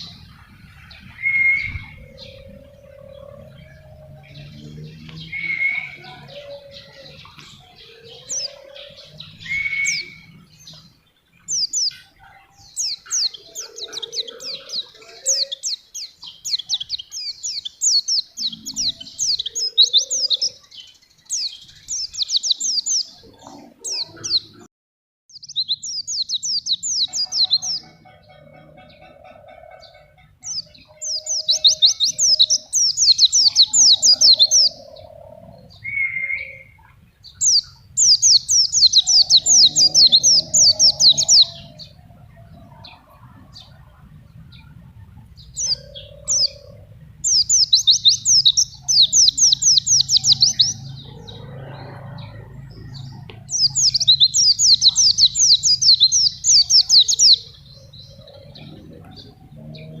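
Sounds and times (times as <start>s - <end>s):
bird singing high trilled notes: 0.0s - 23.3s, 29.8s - 35.0s
soft low bird calls: 25.3s - 60.0s.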